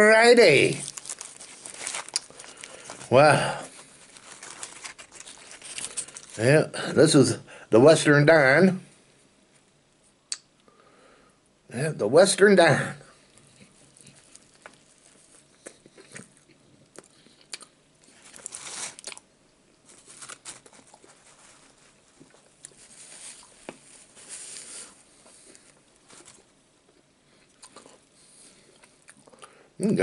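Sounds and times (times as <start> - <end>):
man chewing a burger: 0.8 - 6.4, 13.2 - 29.5.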